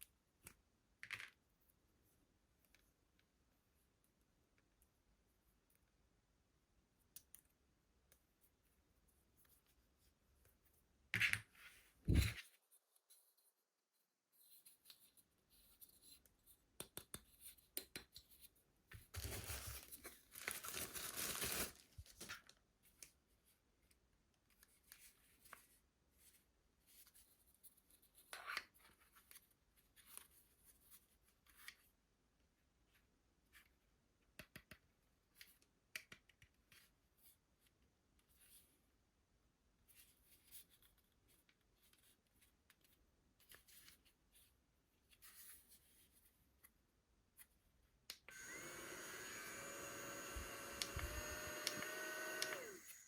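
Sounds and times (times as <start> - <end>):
cutting or tearing packaging: 19.2 - 21.9.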